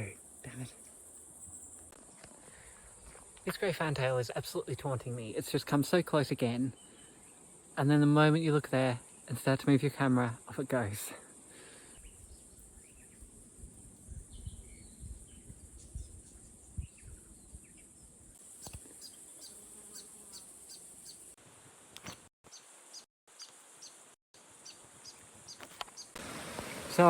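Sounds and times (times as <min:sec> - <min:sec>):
high insect-like hiss: 0:00.0 - 0:21.7, 0:22.8 - 0:27.0
small bird chirping: 0:12.0 - 0:13.4, 0:14.0 - 0:21.4, 0:22.5 - 0:24.0, 0:24.6 - 0:26.2
wind rumble on microphone: 0:12.0 - 0:17.8.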